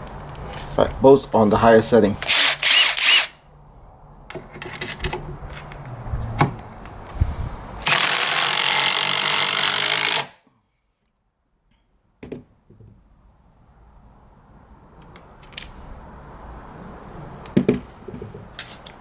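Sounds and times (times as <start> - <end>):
impact drivers hammering: 2.2 - 3.3, 7.9 - 10.3.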